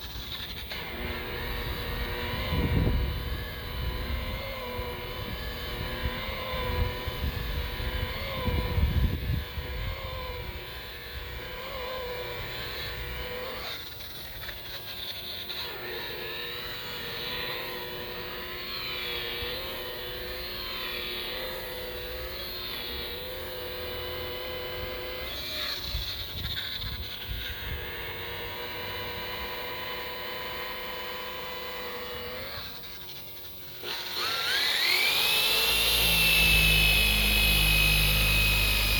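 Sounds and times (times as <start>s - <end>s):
rotary buffer motor whine: 0.0s - 38.9s.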